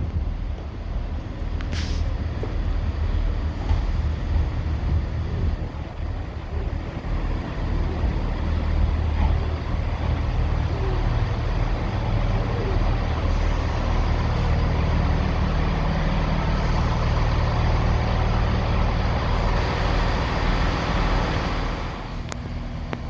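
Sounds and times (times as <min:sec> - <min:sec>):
diesel train engine rumbling: 0:00.0 - 0:23.0
hiss of released air: 0:01.7 - 0:02.2.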